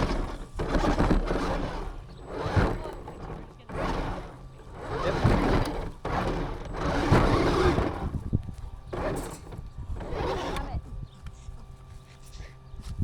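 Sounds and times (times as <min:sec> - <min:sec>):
toy car rumbling over rough ground: 0:00.0 - 0:11.8.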